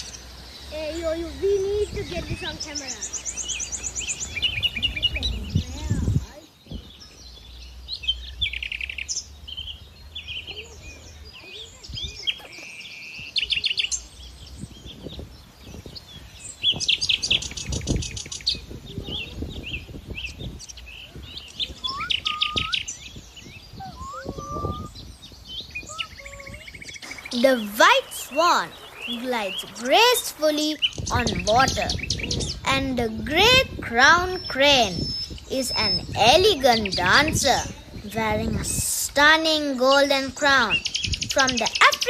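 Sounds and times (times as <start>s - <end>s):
low whistled bird notes: 0.0s - 32.7s
birds chirping and trilling: 0.0s - 42.0s.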